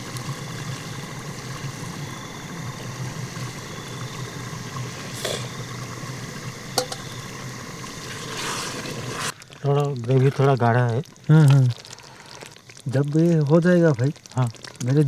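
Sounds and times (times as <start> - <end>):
gravy bubbling in a pot: 0.0 - 15.0
sharp pops: 6.8 - 10.0.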